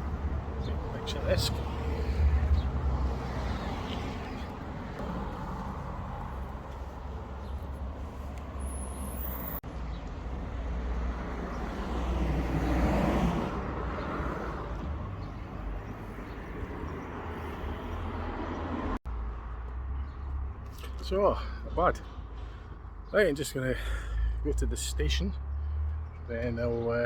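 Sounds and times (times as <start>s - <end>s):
vehicle passing: 0.0s - 9.6s, 10.2s - 20.8s
road traffic background: 0.0s - 27.0s.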